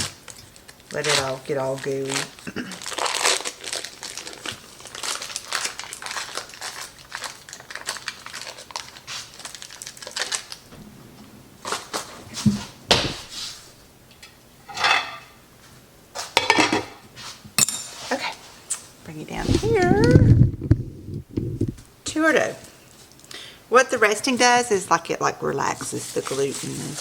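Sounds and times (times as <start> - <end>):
rustling and crinkling: 0.0 - 16.4, 18.0 - 21.9
sharp knocks: 12.3 - 13.4.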